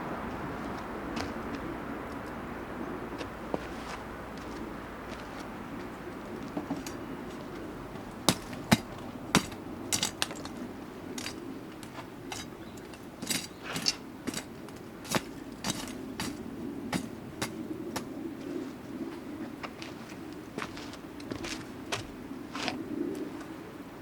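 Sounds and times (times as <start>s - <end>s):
low rush of flames: 0.0s - 6.6s.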